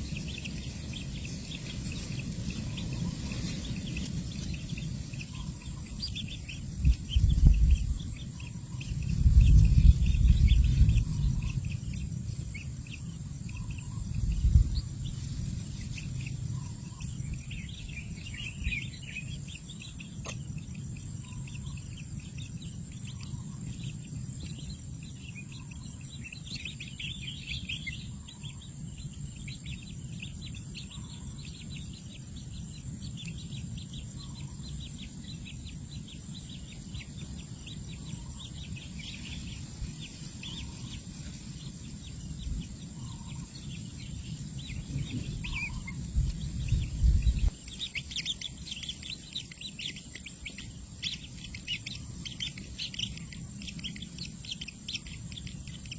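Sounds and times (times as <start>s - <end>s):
low rumble: 0.0s - 20.0s
small birds chirping: 0.0s - 55.9s.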